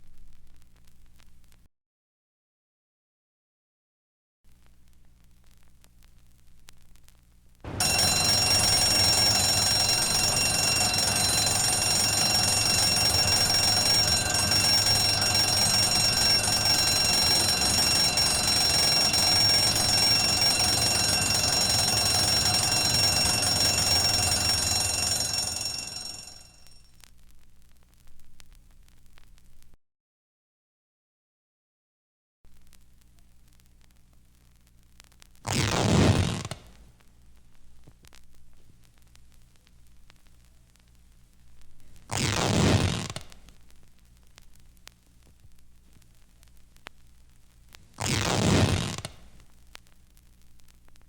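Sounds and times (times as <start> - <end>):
bell ringing continuously: 7.8 - 26.8.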